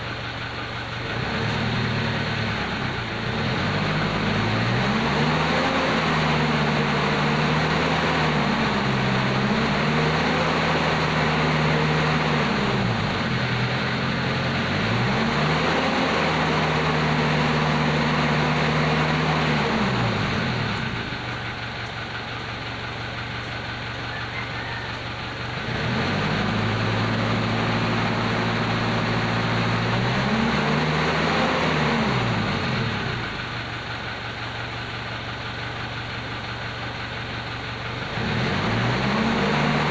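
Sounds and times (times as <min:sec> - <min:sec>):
diesel engine revving and idling: 0:00.0 - 0:39.9.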